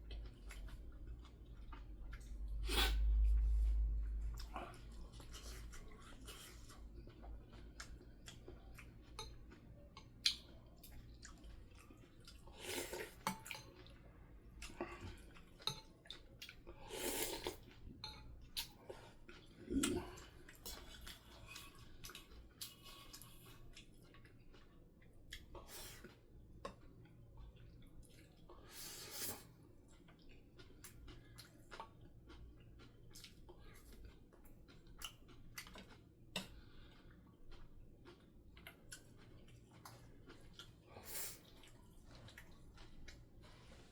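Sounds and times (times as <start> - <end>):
chewing: 0.1 - 43.9
slurping: 16.8 - 17.7.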